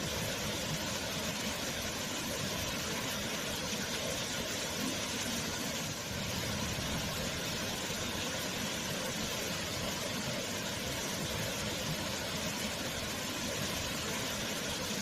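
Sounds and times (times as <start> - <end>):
waterfall: 0.0 - 15.0.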